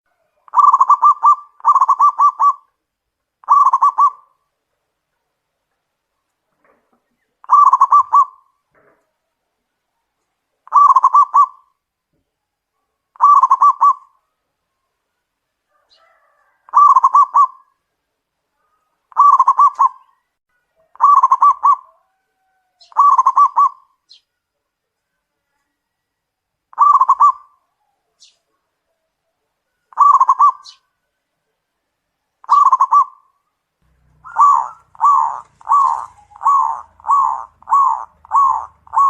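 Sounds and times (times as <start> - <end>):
dove cooing in staccato notes: 0.5 - 2.7, 3.4 - 4.2, 7.4 - 8.4, 10.7 - 11.6, 13.2 - 14.1, 16.0 - 17.7, 19.1 - 20.1, 20.8 - 22.2, 22.9 - 23.8, 26.7 - 27.5, 29.9 - 30.7, 32.4 - 33.2, 33.9 - 39.0.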